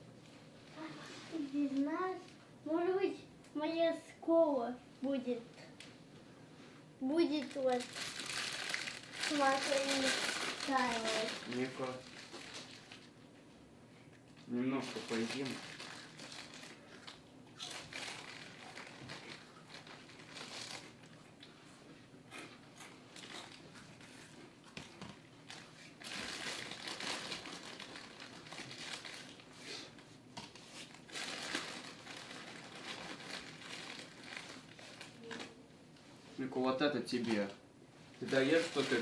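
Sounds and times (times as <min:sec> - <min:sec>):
food packaging crinkling: 0:07.4 - 0:13.2, 0:14.7 - 0:21.2, 0:24.8 - 0:35.6, 0:38.2 - 0:39.0.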